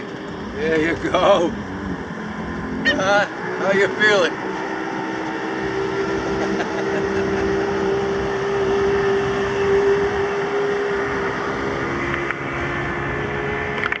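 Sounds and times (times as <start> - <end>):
engine drone: 0.0 - 14.0.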